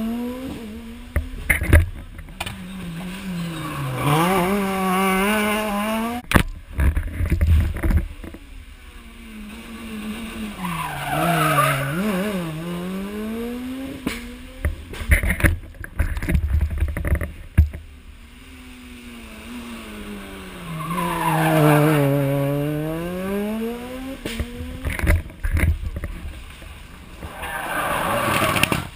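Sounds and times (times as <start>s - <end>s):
rally car engine revving: 0.0s - 28.9s.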